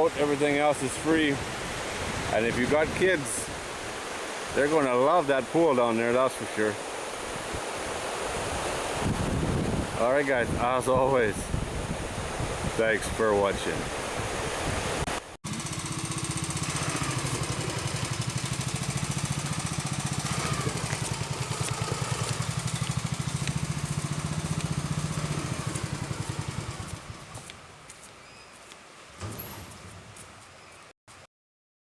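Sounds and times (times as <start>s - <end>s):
engine running fast: 15.4s - 27.6s.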